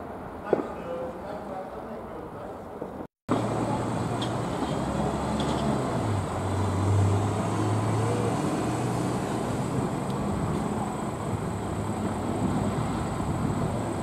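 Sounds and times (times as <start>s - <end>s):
vehicle engine hum: 3.3s - 14.0s.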